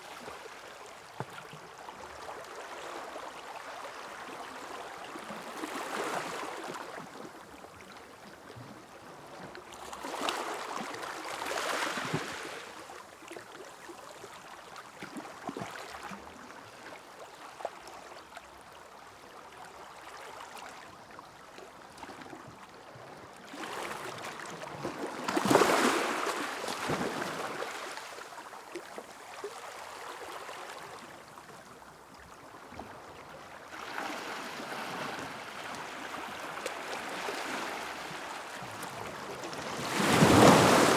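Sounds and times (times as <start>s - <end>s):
sea waves washing onto beach: 36.5s - 40.9s.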